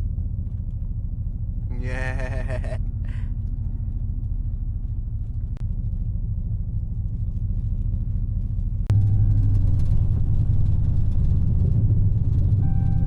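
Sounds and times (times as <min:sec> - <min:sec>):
car engine exhaust rumble: 0:00.0 - 0:13.0.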